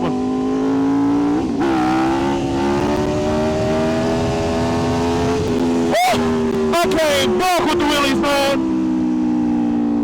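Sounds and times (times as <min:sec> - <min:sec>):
motorcycle engine accelerating: 0:00.0 - 0:10.0
wind noise: 0:01.7 - 0:06.8.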